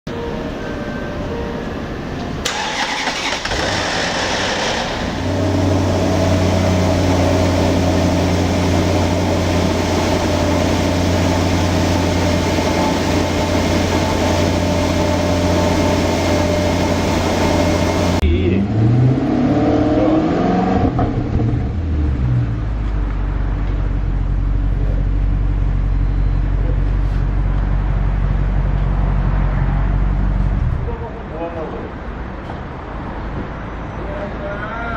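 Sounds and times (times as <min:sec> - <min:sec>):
car engine starting and idling: 0:00.1 - 0:33.7
engine revving: 0:02.5 - 0:22.7.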